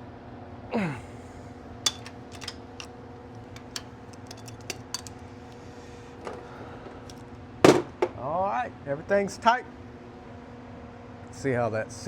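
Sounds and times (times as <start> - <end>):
steady shop hum: 0.7 - 10.3
metallic wrench clicks and taps: 1.9 - 2.6, 3.6 - 5.1.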